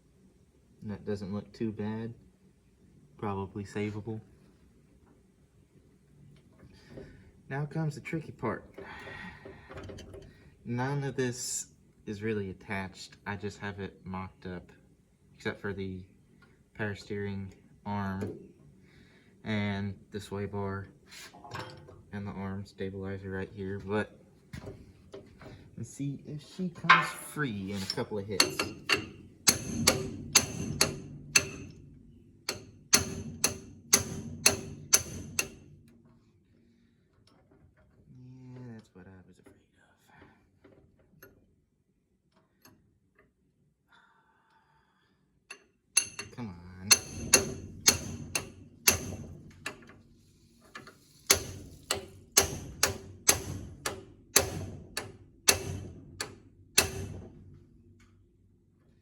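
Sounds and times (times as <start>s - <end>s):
hammer striking metal: 26.8s - 31.8s, 32.5s - 35.6s, 46.0s - 49.8s, 51.3s - 57.2s
hammer striking metal ringing: 26.8s - 31.8s, 46.0s - 49.2s.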